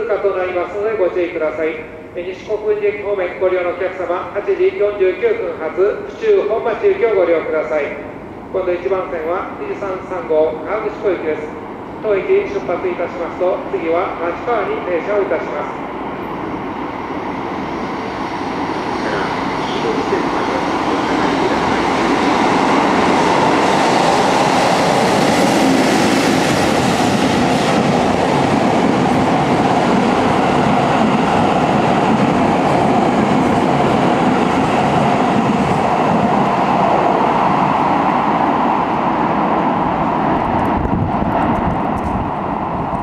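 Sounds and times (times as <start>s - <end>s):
train wheels rumbling on rails: 11.6s - 43.0s.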